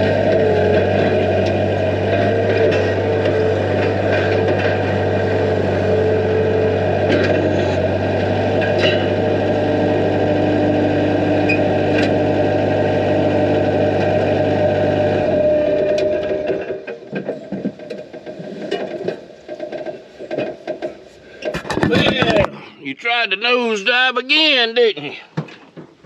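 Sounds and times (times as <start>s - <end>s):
machine humming: 0.0s - 20.4s.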